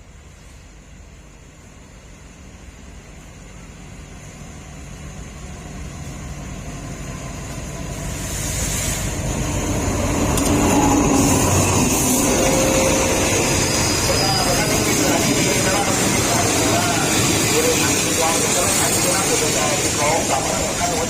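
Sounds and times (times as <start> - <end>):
train rumble: 0.0 - 21.0
high hissing brake squeal: 10.6 - 17.8.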